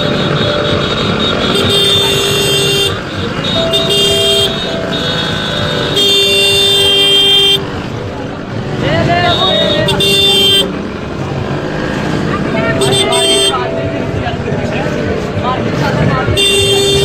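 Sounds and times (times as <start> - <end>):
vehicle horns honking: 0.0 - 7.9, 8.6 - 11.0, 12.2 - 14.2, 16.0 - 17.0
crowd noise: 0.0 - 17.0
traffic noise: 0.0 - 17.0.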